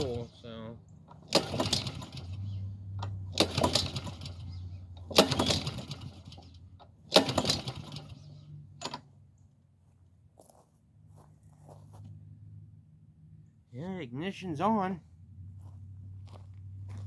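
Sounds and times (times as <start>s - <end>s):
lawn mower pull-start cranking: 0.0s - 0.4s, 1.1s - 9.1s.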